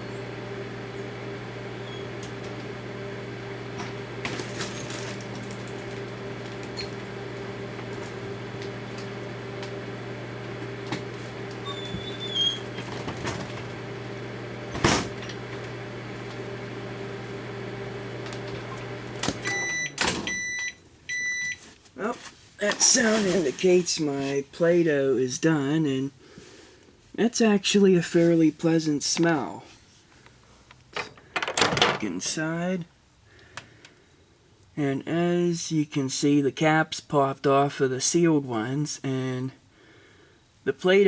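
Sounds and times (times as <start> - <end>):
microwave oven humming: 0.0 - 22.1.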